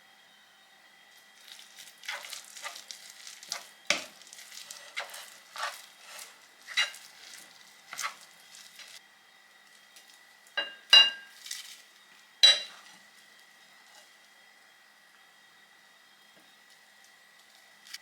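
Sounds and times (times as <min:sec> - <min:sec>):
faint sizzle: 0:00.0 - 0:18.0
utensil scraping and knocking pan: 0:03.5 - 0:09.0.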